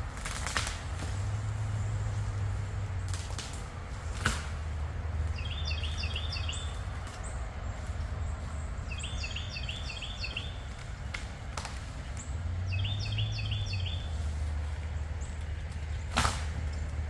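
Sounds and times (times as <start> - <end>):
steady low rumble: 0.0 - 17.0
songbird singing: 4.6 - 17.0.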